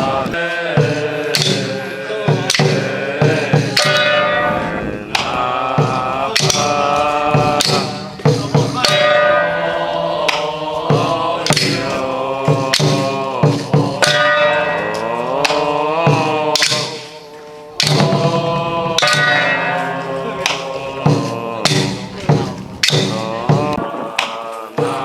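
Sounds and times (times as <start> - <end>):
sharp percussion strikes: 0.0 - 25.0.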